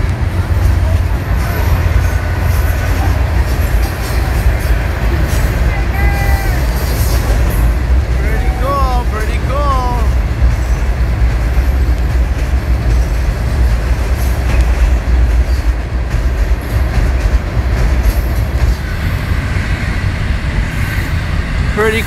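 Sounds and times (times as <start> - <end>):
train rumbling past: 0.0 - 22.0.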